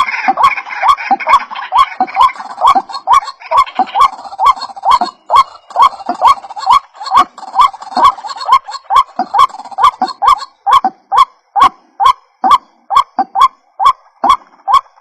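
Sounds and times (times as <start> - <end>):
waterhen calling: 0.0 - 15.0.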